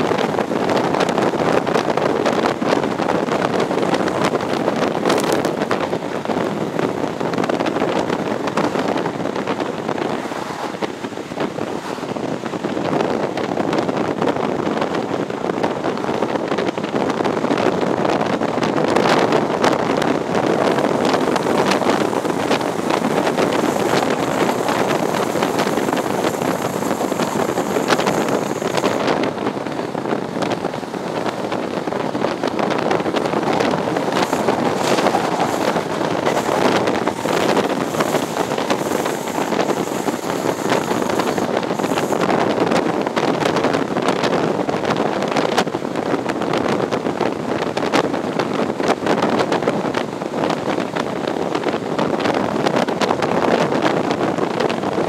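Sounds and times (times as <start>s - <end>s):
train rumble: 0.0s - 55.0s
wind rushing past train window: 0.0s - 55.0s
thin high whine: 20.3s - 29.7s, 30.7s - 42.6s.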